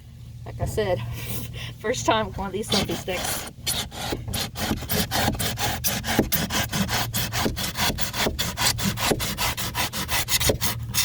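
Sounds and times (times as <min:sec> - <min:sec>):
knife sawing through foam: 0:02.6 - 0:11.0.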